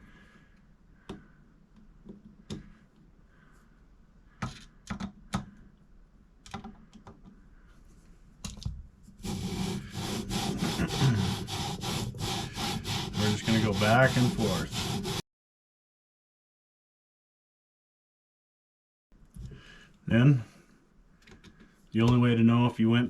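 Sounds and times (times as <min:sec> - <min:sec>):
gritty rhythmic metal scraping: 0:09.2 - 0:15.2.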